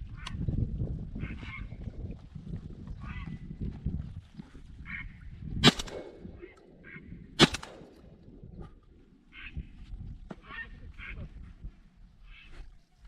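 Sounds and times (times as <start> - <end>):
shotgun shots: 5.6 - 6.4, 7.4 - 8.1
ducks calling: 6.4 - 7.3, 9.2 - 11.5.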